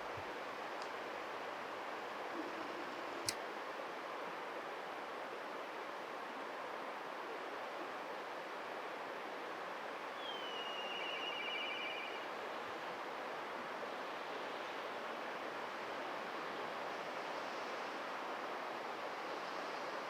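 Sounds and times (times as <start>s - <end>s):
kite whistled trilling call: 10.2s - 12.2s.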